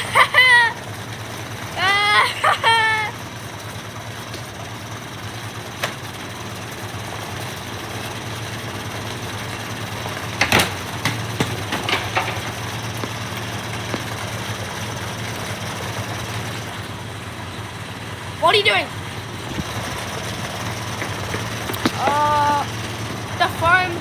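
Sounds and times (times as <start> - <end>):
washing machine drum spinning: 0.0 - 16.8
objects knocking inside drum: 10.4 - 14.3.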